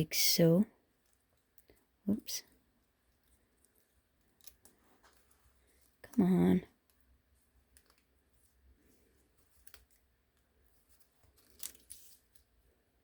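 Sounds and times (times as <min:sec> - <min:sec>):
paper clicks and rustles: 0:09.2 - 0:12.5.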